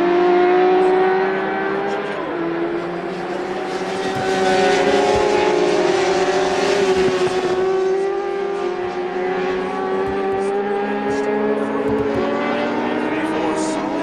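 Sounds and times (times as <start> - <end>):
racing motorcycles passing at high revs: 0.0 - 14.0.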